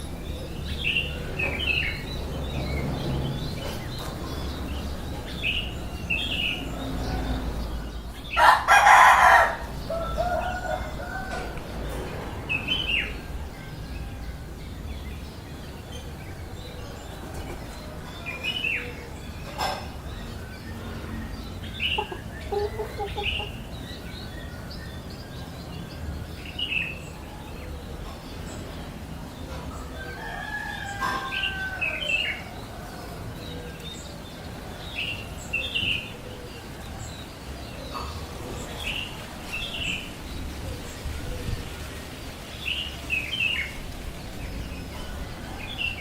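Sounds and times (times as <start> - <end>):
baby birds chirping: 21.6 - 24.1.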